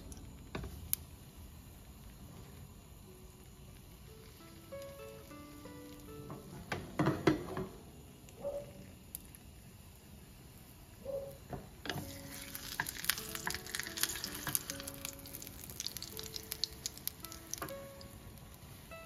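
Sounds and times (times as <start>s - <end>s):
light background music: 0.0s - 8.6s, 11.9s - 19.0s
food sizzling in hot oil: 11.9s - 18.8s.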